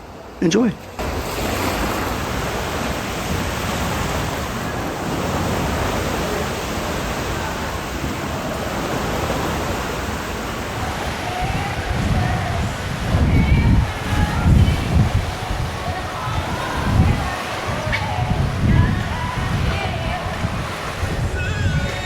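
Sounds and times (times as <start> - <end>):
pool water sloshing and splashing: 0.8 - 22.0.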